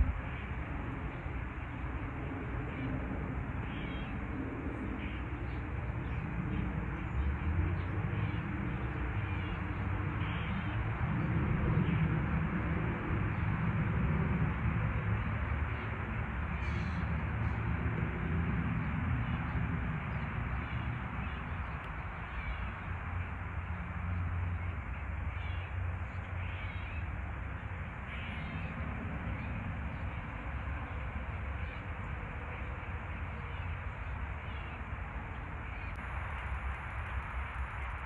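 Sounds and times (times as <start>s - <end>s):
faint bird calls: 3.6s - 5.6s, 9.2s - 10.8s, 24.5s - 27.1s, 28.0s - 30.2s.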